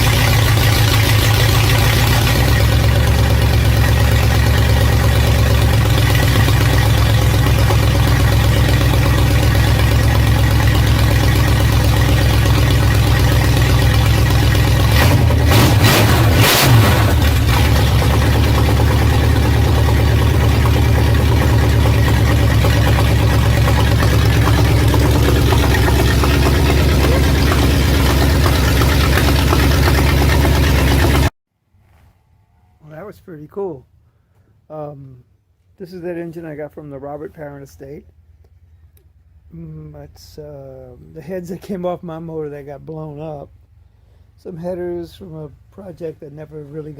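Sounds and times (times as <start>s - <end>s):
engine idling: 0.0s - 31.4s.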